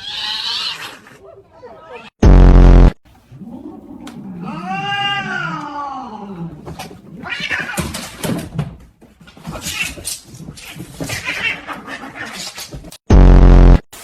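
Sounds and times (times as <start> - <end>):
cat yowling: 4.0 - 6.6
short scratchy noises: 12.3 - 14.0.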